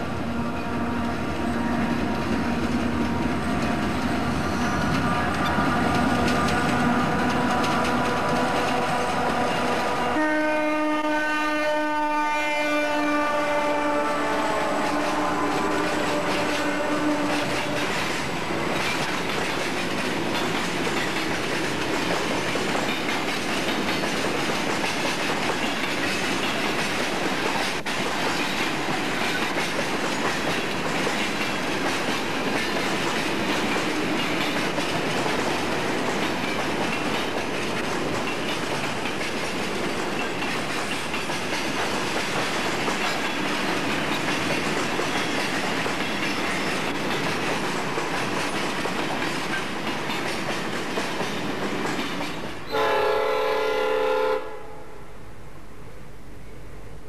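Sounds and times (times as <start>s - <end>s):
freight wagons rumbling and clattering: 2.0s - 9.8s.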